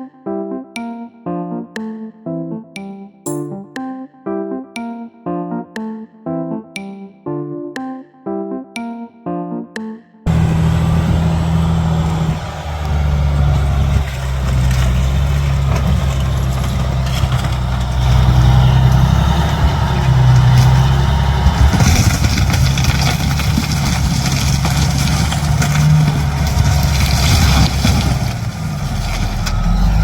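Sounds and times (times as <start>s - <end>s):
engine idling: 10.3s - 30.0s.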